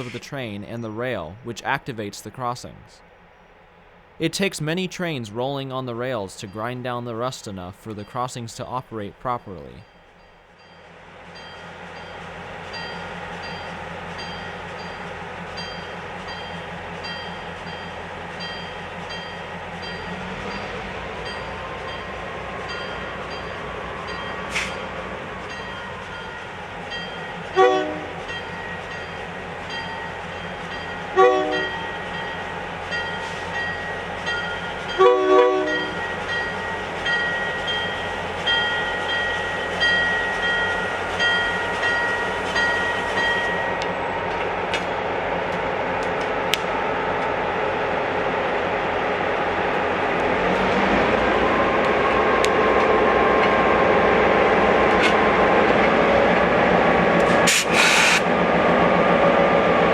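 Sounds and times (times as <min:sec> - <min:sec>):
locomotive bell ringing: 0:00.0 - 0:44.3
train rumbling past: 0:00.0 - 0:59.9
locomotive air horn blasts: 0:27.6 - 0:28.2, 0:31.2 - 0:31.8, 0:35.0 - 0:35.9, 0:57.4 - 0:58.3.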